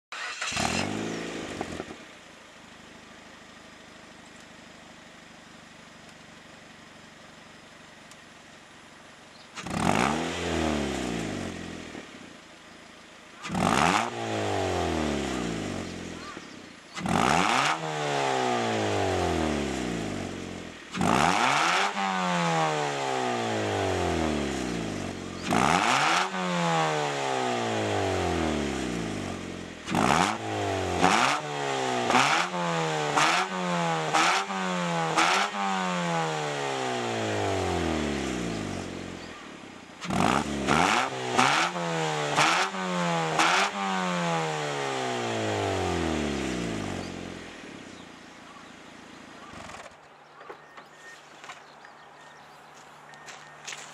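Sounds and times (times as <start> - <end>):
quick throttle blips: 0.1 - 1.9
car engine free-revving: 0.1 - 5.3, 8.7 - 53.9.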